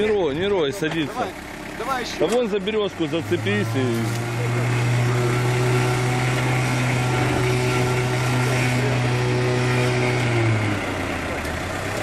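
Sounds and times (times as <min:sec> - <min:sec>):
off-road vehicle engine droning: 0:00.0 - 0:12.0.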